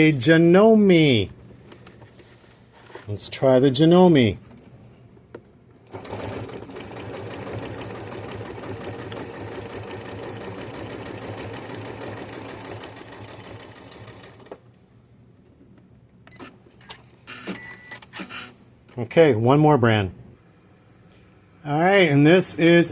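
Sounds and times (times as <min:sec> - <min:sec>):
sewing machine running: 0:05.9 - 0:14.6.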